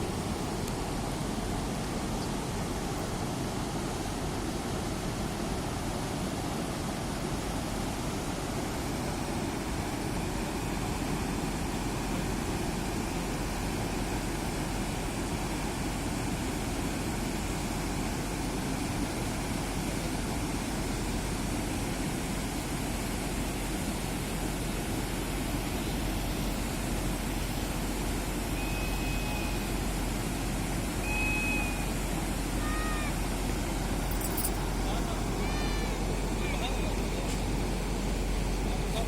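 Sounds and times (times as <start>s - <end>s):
river water flowing: 0.0s - 39.0s
short whistles: 28.6s - 29.7s, 31.0s - 32.0s.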